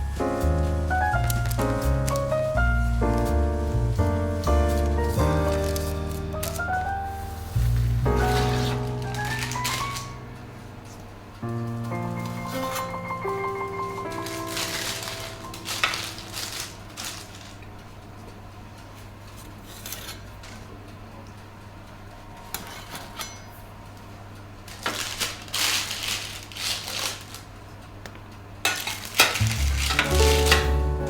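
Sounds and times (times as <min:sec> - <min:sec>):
low steady hum: 0:00.0 - 0:19.0
dishes and utensils clattering: 0:12.2 - 0:17.4, 0:28.6 - 0:31.0.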